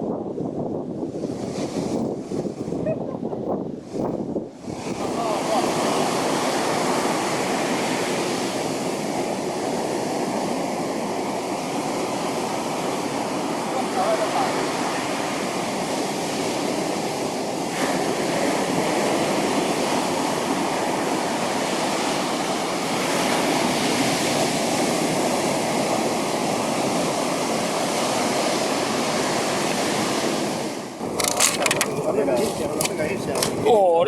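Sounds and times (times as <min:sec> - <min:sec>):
ocean surf washing onto beach: 0:00.0 - 0:34.0
wind on the microphone: 0:00.0 - 0:34.0.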